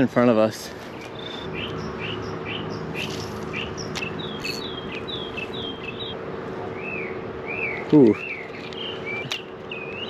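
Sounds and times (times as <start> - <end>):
bird chirping: 0.8 - 10.0.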